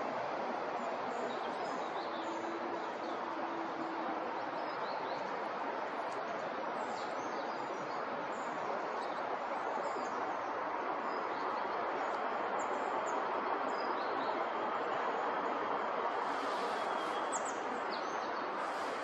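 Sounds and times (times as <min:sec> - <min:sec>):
steady rushing noise: 0:08.3 - 0:19.0
small birds chirping: 0:16.2 - 0:19.0.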